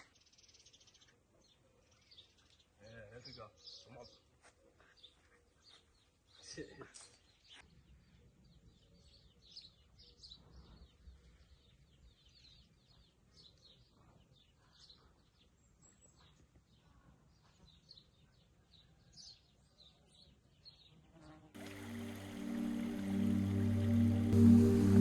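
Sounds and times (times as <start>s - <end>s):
low steady rumble: 21.6s - 25.0s
songbirds chirping: 21.6s - 25.0s.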